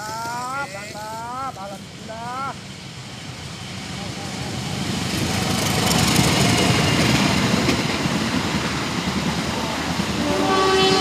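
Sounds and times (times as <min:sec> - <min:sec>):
train passing: 0:00.0 - 0:11.0
train horn chord: 0:10.2 - 0:11.0.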